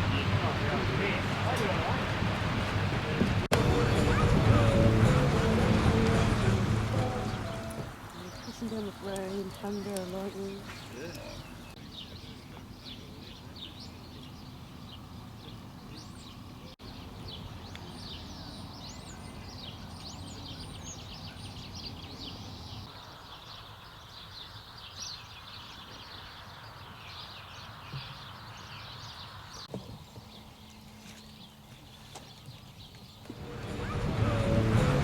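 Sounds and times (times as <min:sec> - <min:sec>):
steady low rumble: 0:00.0 - 0:08.0, 0:33.4 - 0:35.0
birds singing: 0:03.5 - 0:35.0.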